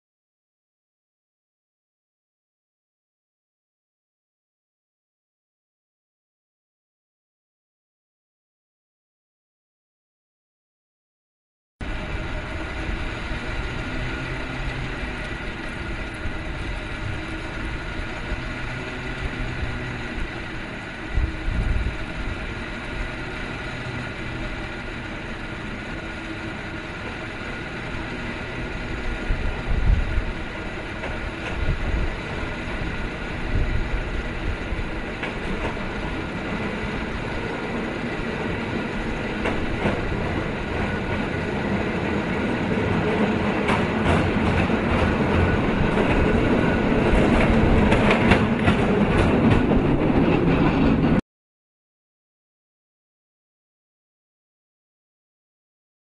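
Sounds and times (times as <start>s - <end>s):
cable car on rails: 11.8s - 51.2s
cable line whirring and clatter: 11.8s - 51.2s.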